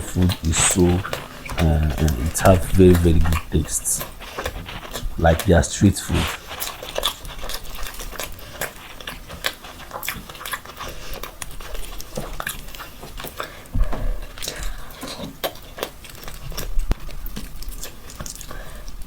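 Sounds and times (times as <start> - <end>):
person chewing with wet smacks: 0.0 - 19.0.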